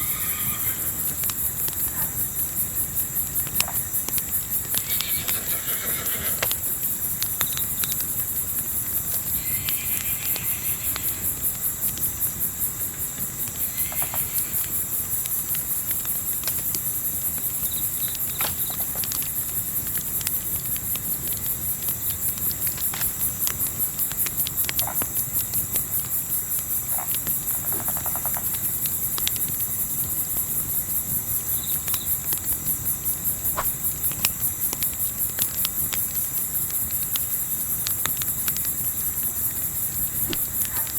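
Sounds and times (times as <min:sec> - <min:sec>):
campfire crackling: 0:00.0 - 0:40.9
crickets chirping: 0:00.0 - 0:40.9.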